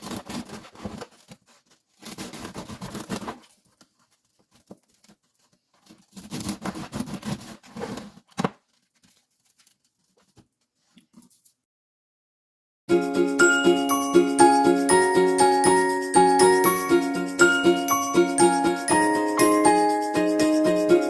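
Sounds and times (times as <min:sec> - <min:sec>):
rustling and scraping: 0:00.0 - 0:11.6.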